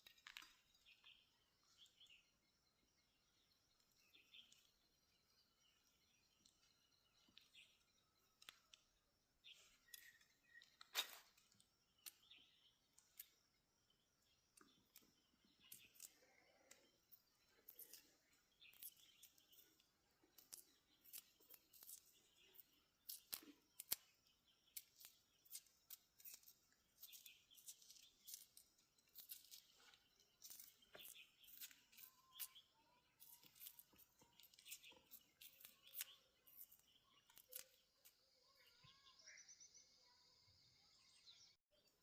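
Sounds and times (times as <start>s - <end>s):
bird chirps: 0.0s - 42.0s
dry leaves crackling and snapping: 20.4s - 24.0s, 24.7s - 29.8s, 30.4s - 32.6s, 33.2s - 37.7s.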